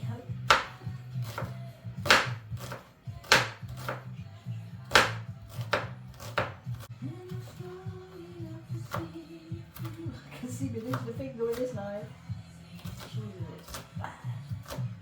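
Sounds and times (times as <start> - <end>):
knife chopping on cutting board: 0.4 - 4.1, 4.9 - 7.8, 8.7 - 10.1, 10.8 - 11.8, 12.8 - 15.0.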